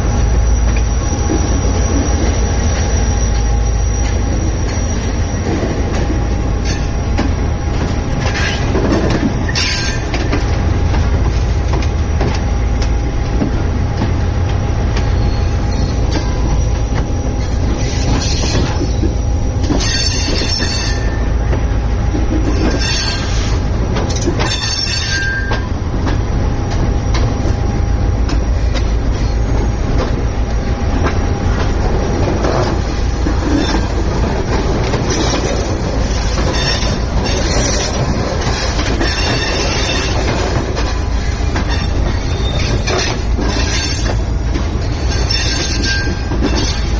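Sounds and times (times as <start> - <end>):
train wheels rumbling on rails: 0.0 - 46.9
high-pitched wheel squeals: 0.1 - 7.0, 15.0 - 21.5, 22.5 - 23.6, 35.0 - 40.4, 41.0 - 44.4.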